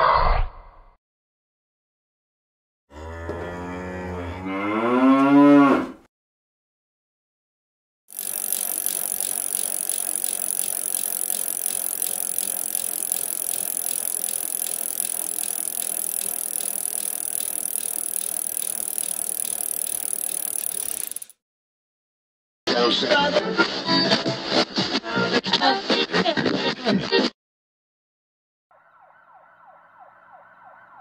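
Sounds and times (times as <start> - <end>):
bicycle ticking: 8.1 - 21.4.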